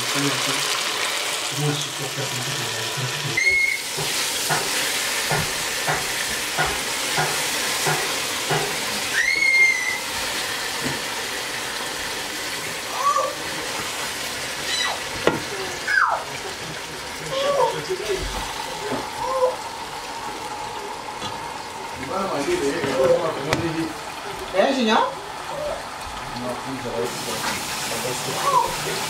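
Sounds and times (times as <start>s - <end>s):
food sizzling in a pot: 0.0s - 29.0s
short high-pitched squeals: 3.4s - 3.9s.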